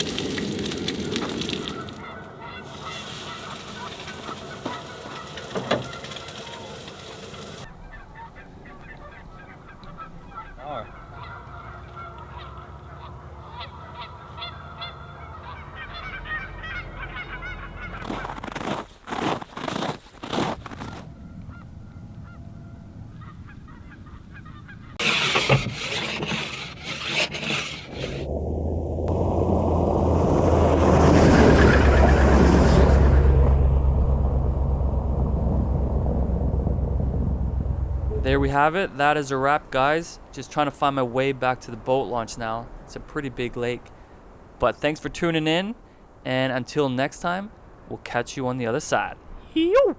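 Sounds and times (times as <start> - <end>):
truck engine and tyre noise: 0.0 - 39.6
geese honking: 1.6 - 18.6, 20.8 - 28.2
steady low hum: 32.7 - 38.8.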